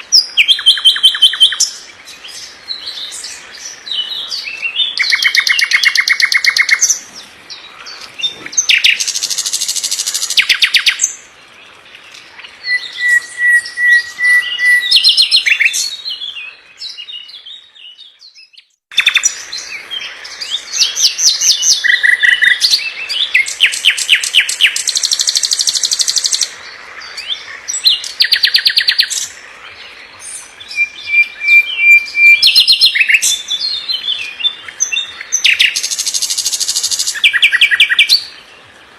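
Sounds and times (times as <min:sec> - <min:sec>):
songbird trills and whistles: 0:00.1 - 0:07.0, 0:12.4 - 0:26.5, 0:30.2 - 0:38.4.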